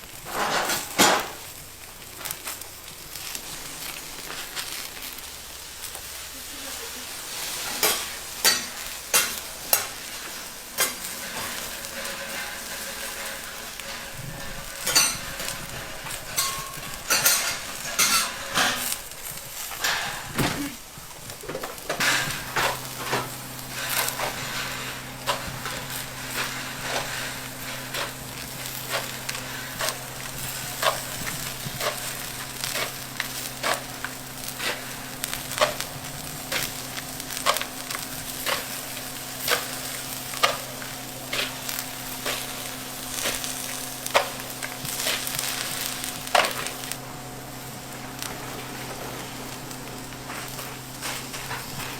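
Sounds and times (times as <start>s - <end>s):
food sizzling in frying: 0.0s - 51.9s
metal utensils scraping: 0.3s - 1.4s, 7.3s - 47.0s.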